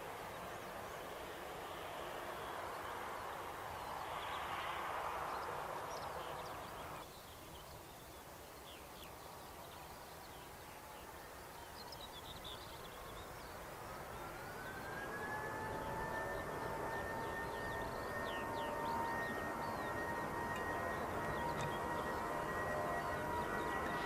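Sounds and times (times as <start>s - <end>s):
jet aircraft noise: 0.0s - 7.1s, 12.6s - 24.0s
birds chirping: 0.2s - 24.0s
jet engine spooling up: 13.6s - 24.0s.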